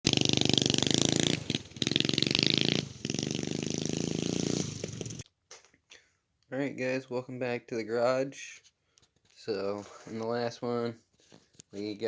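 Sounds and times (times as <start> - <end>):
minibike engine running: 0.1 - 5.2.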